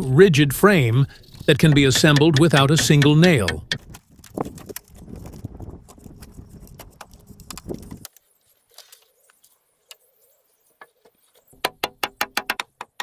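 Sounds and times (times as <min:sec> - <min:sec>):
scattered clicks: 0:01.4 - 0:08.2
sharp knocks on timber: 0:01.6 - 0:03.9, 0:11.6 - 0:13.0.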